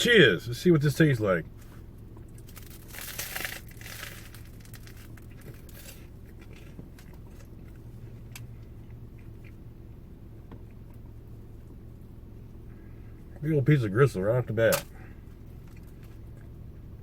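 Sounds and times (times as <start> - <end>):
crusty bread crunching: 1.7 - 9.6
chewing with small clicks: 5.1 - 9.7, 15.5 - 16.6.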